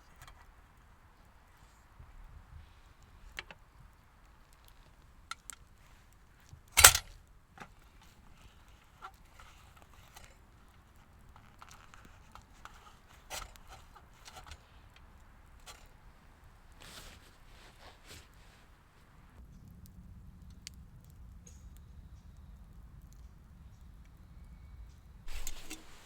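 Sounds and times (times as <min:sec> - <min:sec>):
small clicks and knocks: 0:03.2 - 0:16.0, 0:24.9 - 0:26.0.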